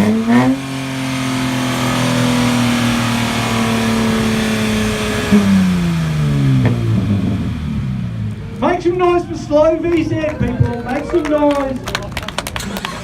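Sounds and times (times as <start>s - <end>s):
car engine revving hard: 0.0s - 8.6s.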